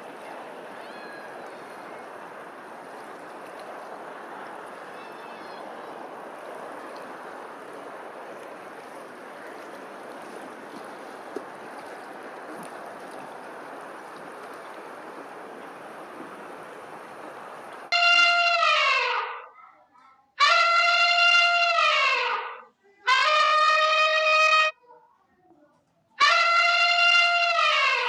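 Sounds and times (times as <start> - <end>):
elephant trumpeting: 17.9 - 19.5, 20.4 - 24.7, 26.2 - 28.0.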